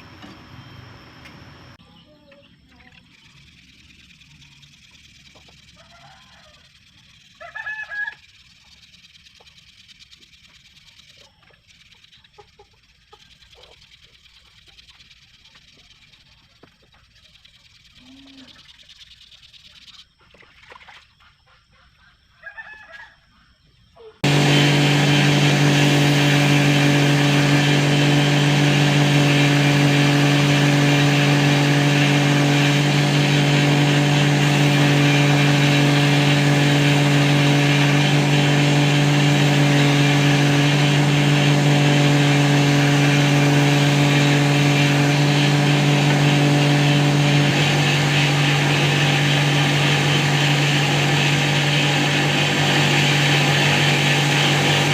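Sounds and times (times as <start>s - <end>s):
electric power tool whirring: 24.2s - 54.9s.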